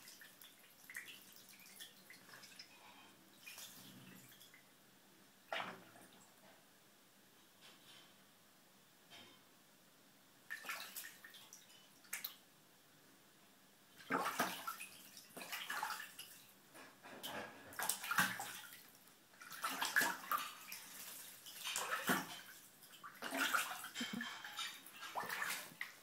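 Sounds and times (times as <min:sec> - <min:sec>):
duckling splashing in water: 0:10.5 - 0:12.3, 0:14.0 - 0:16.4, 0:17.7 - 0:26.0.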